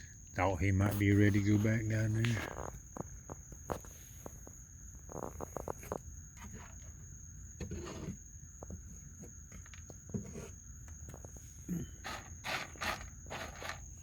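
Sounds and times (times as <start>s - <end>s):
crickets trilling: 0.0s - 14.0s
raccoon eating crunches: 0.9s - 6.0s.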